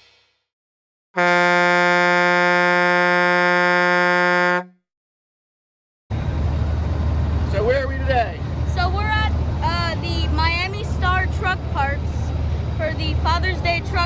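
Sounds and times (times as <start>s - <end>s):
horn-like blast: 1.2s - 4.8s.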